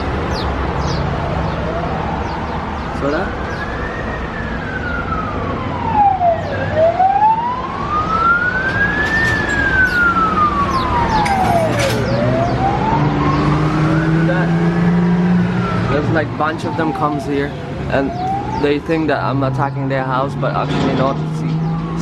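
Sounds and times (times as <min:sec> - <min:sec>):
small birds chirping: 0:00.0 - 0:03.8, 0:09.1 - 0:13.7, 0:16.7 - 0:18.8
siren wailing: 0:00.8 - 0:20.2.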